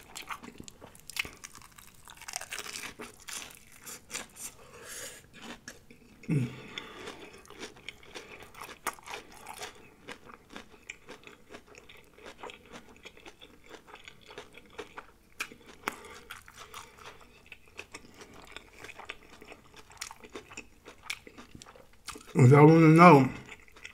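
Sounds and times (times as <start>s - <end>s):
chewing crispy fried shrimp: 0.0s - 23.9s
person humming: 6.3s - 6.6s.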